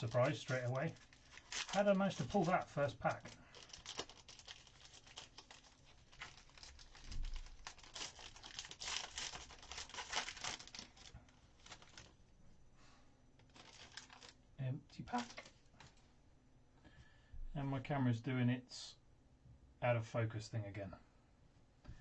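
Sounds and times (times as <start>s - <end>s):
foil wrapper crinkling and tearing: 0.0s - 12.2s, 13.4s - 14.5s, 15.1s - 16.0s.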